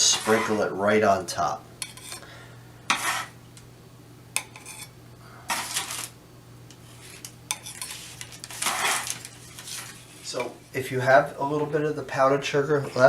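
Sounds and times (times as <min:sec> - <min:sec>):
steady low hum: 0:00.0 - 0:13.0
brief scraping sounds: 0:07.8 - 0:10.3.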